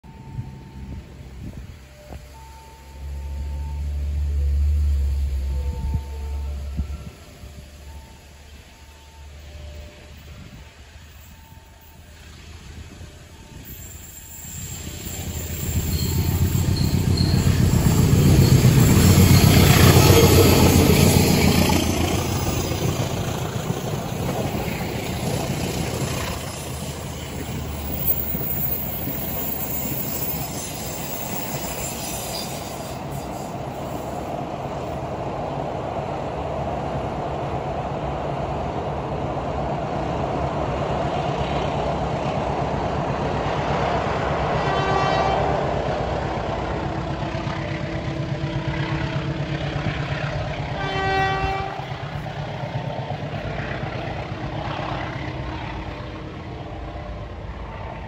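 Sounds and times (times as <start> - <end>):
train wheels rumbling on track: 0.0 - 58.0
locomotive horn blast: 44.6 - 45.8, 50.6 - 52.1.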